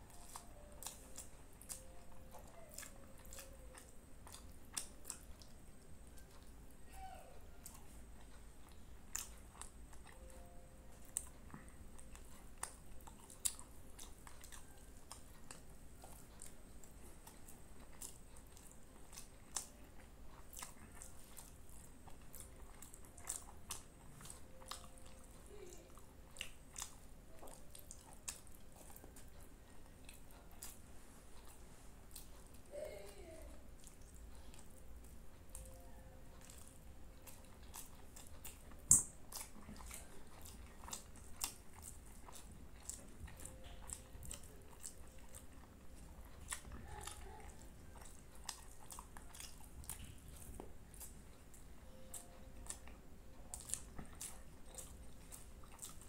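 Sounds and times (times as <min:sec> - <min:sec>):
chewing food: 0:00.0 - 0:56.0
wet lip smacks and mouth clicks: 0:36.4 - 0:45.6.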